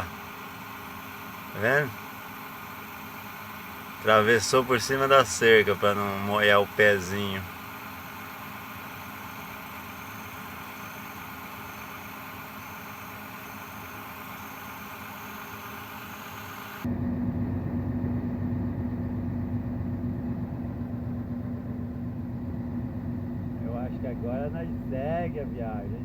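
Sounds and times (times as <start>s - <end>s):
diesel truck engine idling: 0.0s - 26.0s
deep engine note: 16.8s - 26.0s.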